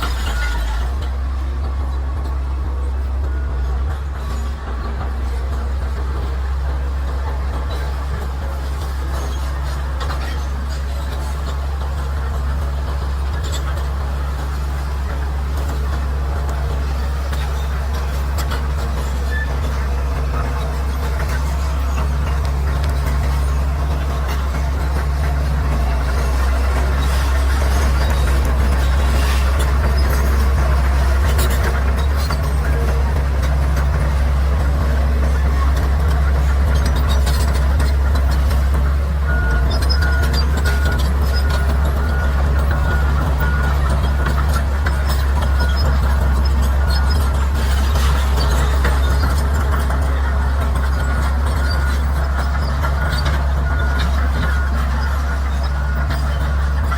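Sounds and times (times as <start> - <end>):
bulldozer diesel engine humming: 0.0 - 56.9
reversing alarm beeps: 39.2 - 48.0.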